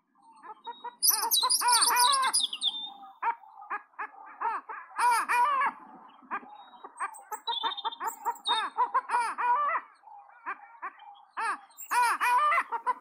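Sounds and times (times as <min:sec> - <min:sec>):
birds calling: 0:00.2 - 0:13.0
high chirps of songbirds: 0:00.4 - 0:03.1, 0:06.6 - 0:08.8, 0:11.0 - 0:12.1.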